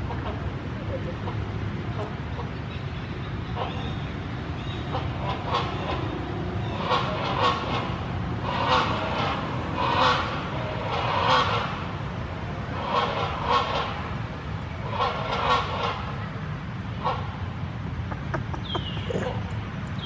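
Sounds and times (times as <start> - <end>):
baby monkey crying: 18.1 - 19.4.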